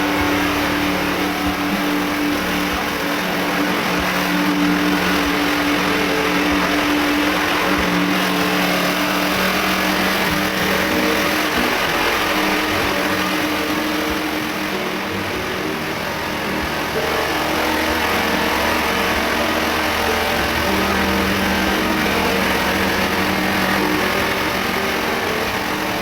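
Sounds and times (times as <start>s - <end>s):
small engine humming: 0.0s - 26.0s.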